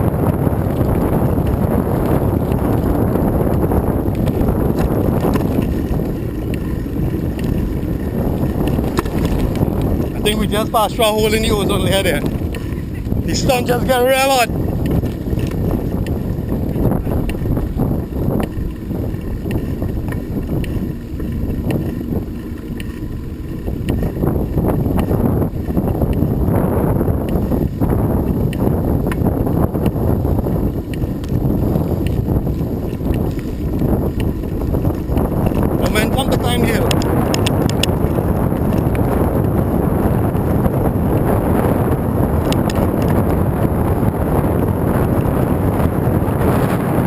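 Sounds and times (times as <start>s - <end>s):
road noise: 0.0s - 47.0s
wind buffeting microphone: 0.0s - 47.0s
small ticks and clicks: 3.5s - 11.5s, 16.9s - 17.7s, 18.3s - 26.3s, 27.2s - 39.6s, 42.4s - 43.4s.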